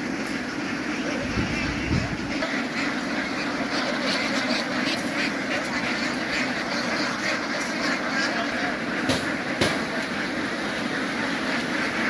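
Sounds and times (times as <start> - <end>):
flock of ducks quacking: 0.0 - 12.0.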